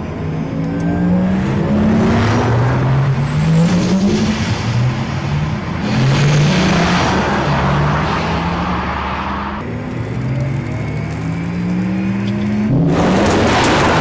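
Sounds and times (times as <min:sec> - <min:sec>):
car accelerating through gears: 0:00.8 - 0:09.6, 0:10.8 - 0:14.0.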